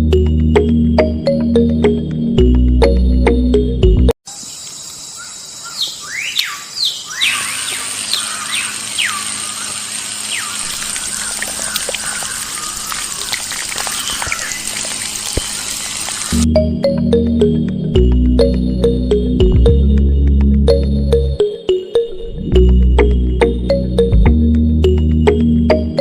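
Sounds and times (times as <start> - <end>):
birds chirping: 4.4 - 16.4.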